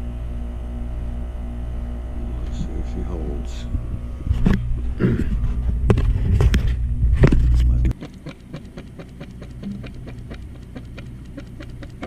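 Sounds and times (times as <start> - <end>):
loud low machine hum: 0.0 - 12.0
faint irregular clicking: 7.9 - 12.0.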